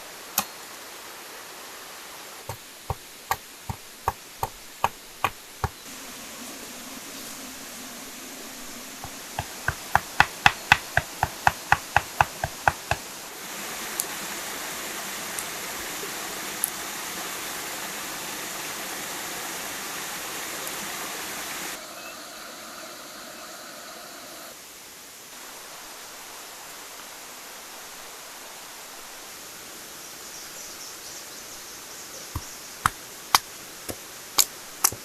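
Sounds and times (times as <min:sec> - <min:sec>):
steady rushing noise: 0:02.5 - 0:16.5.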